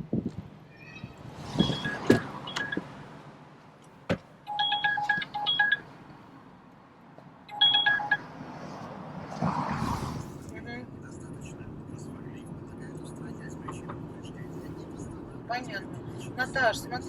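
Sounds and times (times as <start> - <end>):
short electronic beeps: 1.6 - 2.8, 4.5 - 5.8, 7.5 - 8.2.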